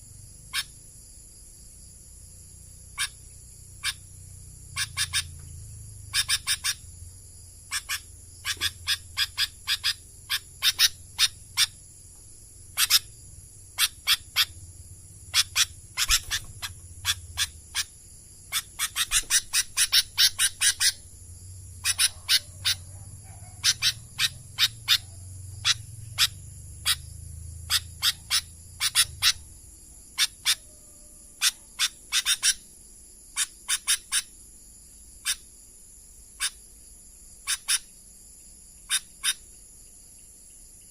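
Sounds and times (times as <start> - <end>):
high-pitched insect drone: 0.0 - 40.9
bulbul chirping: 2.9 - 4.1, 4.8 - 6.8, 7.7 - 11.9, 12.6 - 29.6.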